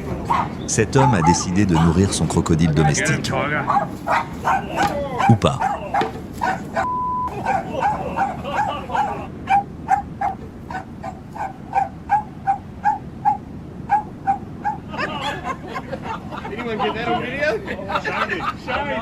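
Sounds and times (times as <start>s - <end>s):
dog barking: 0.0s - 15.1s.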